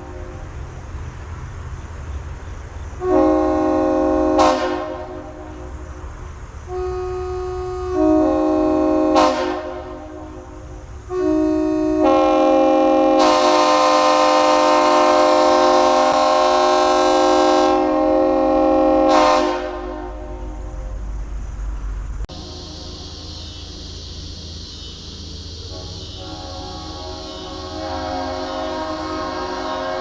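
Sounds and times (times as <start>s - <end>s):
three-chime air horn blasts: 25.7s - 30.0s.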